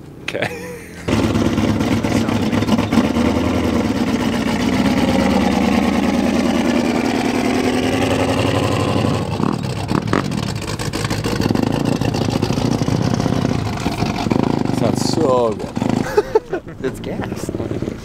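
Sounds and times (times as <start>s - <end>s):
car engine running: 0.9s - 18.0s.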